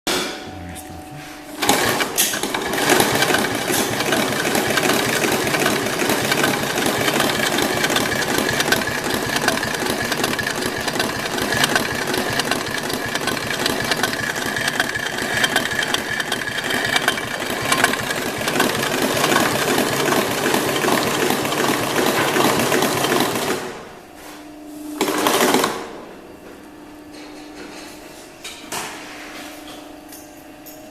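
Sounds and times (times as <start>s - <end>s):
industrial sewing machine clatter: 1.6s - 23.8s, 25.0s - 25.9s.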